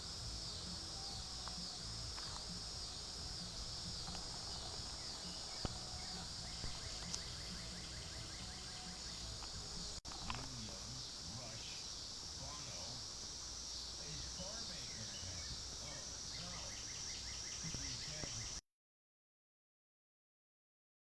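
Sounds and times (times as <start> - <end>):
insects droning shrilly: 0.0 - 18.6
quick ticking insect trill: 0.0 - 18.6.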